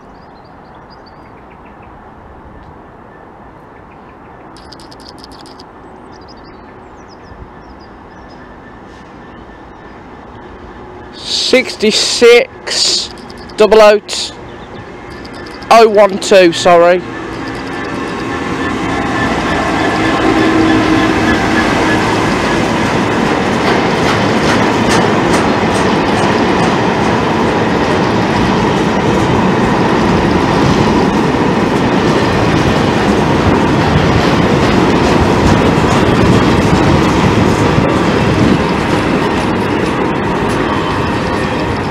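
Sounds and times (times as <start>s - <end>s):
diesel locomotive rumble: 3.4s - 41.9s
wheels clacking over rail joints: 12.0s - 41.9s.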